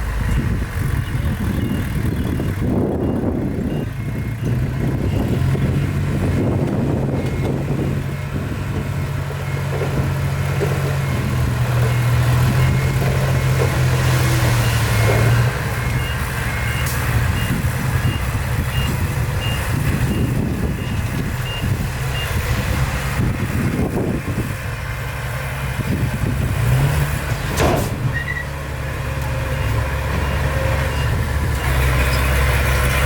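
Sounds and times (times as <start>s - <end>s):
diesel engine drone: 0.0s - 33.0s
reversing alarm beeping: 10.9s - 22.5s, 30.1s - 31.4s.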